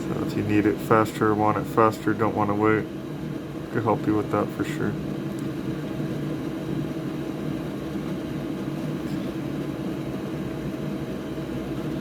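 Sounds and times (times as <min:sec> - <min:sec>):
electric fan motor humming: 0:00.0 - 0:12.0.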